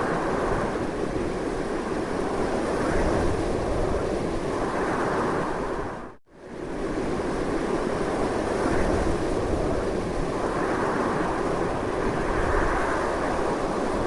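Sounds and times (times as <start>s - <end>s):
strong wind blowing: 0.0s - 14.0s.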